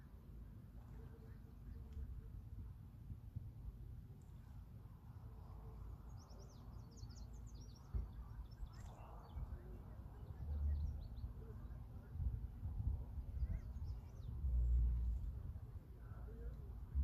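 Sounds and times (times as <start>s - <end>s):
small birds chirping: 5.4s - 15.3s
low rumble: 8.0s - 17.0s.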